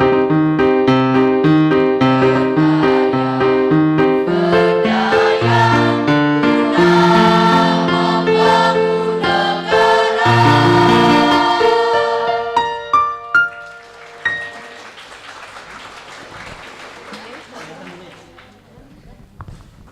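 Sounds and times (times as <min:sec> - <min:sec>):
keyboard accompaniment: 0:00.0 - 0:15.0
choir singing a march: 0:01.9 - 0:12.9.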